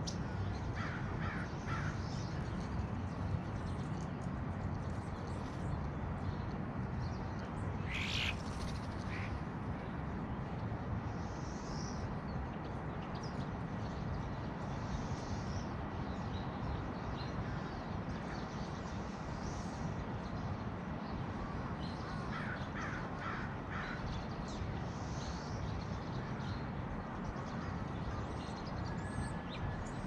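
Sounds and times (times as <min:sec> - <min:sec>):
birds calling: 0:07.8 - 0:09.4.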